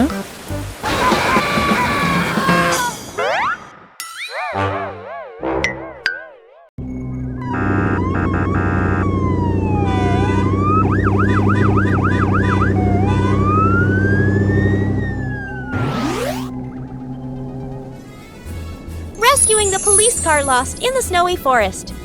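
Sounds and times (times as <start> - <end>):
low engine drone: 6.8 - 18.4
cartoon siren wailing and yelping: 7.5 - 16.5
rising sweep: 13.5 - 18.1.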